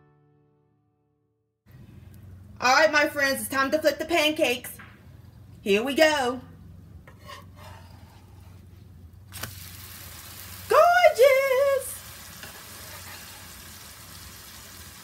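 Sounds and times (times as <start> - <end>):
pancake batter sizzling: 9.3 - 15.0.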